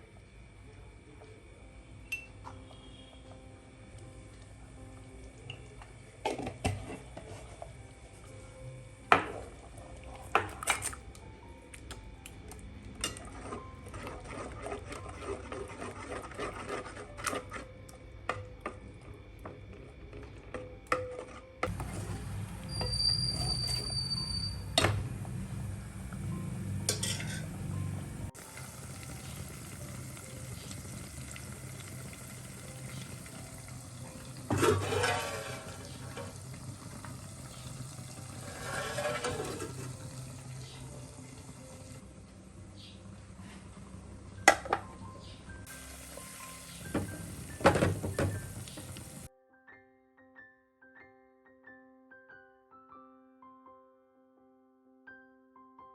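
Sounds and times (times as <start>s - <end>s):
utensils clinking on pots: 2.0s - 2.6s, 5.5s - 7.6s, 10.2s - 11.0s, 13.0s - 14.2s, 20.5s - 28.3s, 32.8s - 40.6s, 46.8s - 49.3s.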